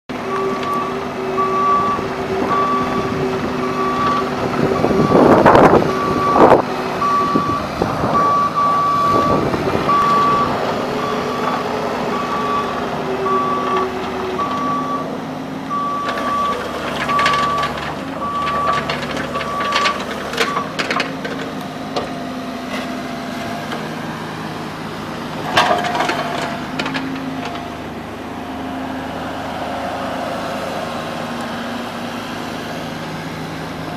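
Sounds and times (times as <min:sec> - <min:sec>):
excavator engine running: 0:00.1 - 0:33.9
travel alarm beeping: 0:00.4 - 0:03.1, 0:06.0 - 0:07.6, 0:08.2 - 0:11.2.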